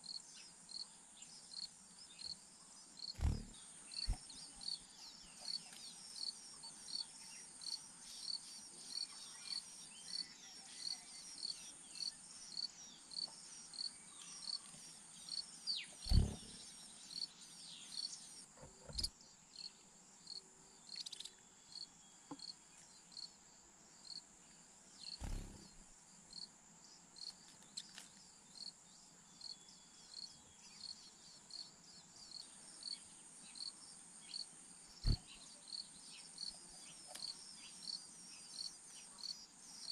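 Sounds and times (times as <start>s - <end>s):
insects chirping: 1.4s - 39.9s
high-pitched insect buzz: 3.0s - 4.8s, 16.0s - 16.8s, 25.0s - 26.4s, 35.0s - 35.3s.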